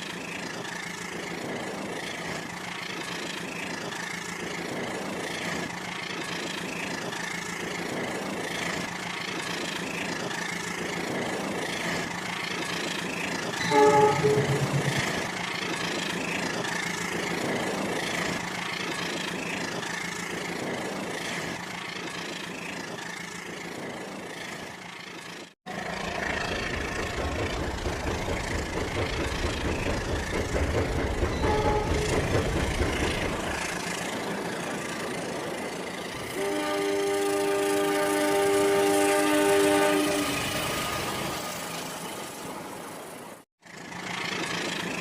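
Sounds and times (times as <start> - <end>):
faint toy horn: 13.6 - 15.2.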